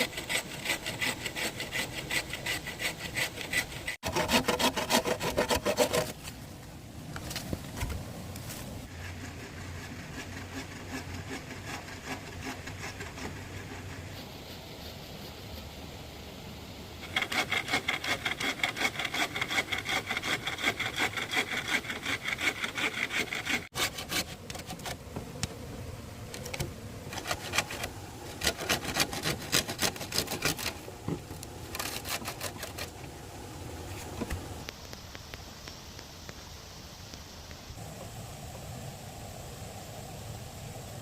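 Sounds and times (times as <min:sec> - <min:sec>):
hand saw cutting bamboo: 0:00.0 - 0:06.3, 0:08.9 - 0:13.9, 0:17.0 - 0:25.0, 0:27.1 - 0:33.0.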